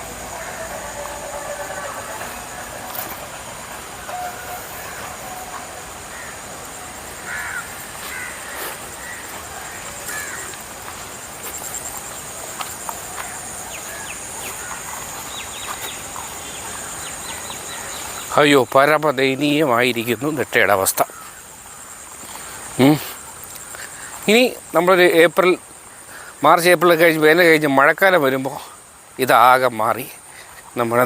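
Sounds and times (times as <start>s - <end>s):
short bird calls: 0.0s - 10.9s
high-pitched insect drone: 0.0s - 29.7s.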